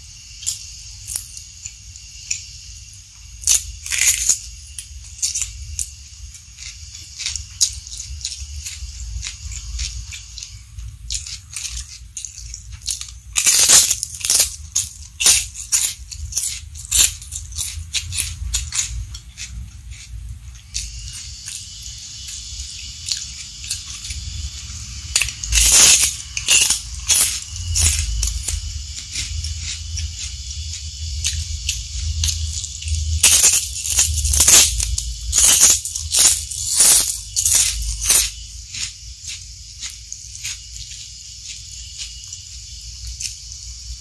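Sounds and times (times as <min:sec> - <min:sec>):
crunchy chewing: 0:00.0 - 0:44.0
steady low hum: 0:00.0 - 0:44.0.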